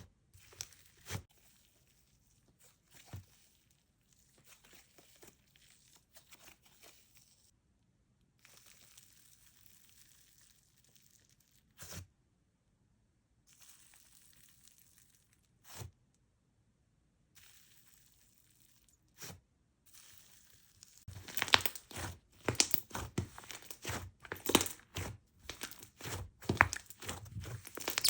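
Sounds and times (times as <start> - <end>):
slime squished by hand: 21.1 - 28.0.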